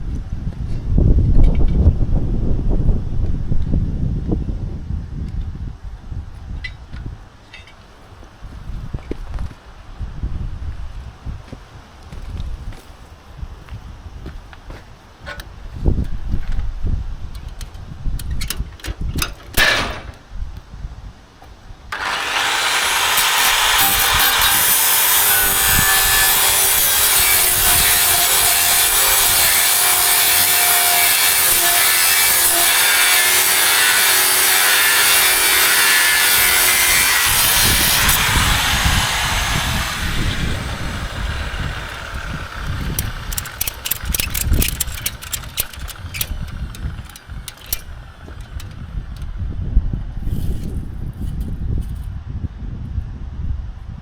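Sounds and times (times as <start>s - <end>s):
power tool grinding steel: 21.9s - 48.8s.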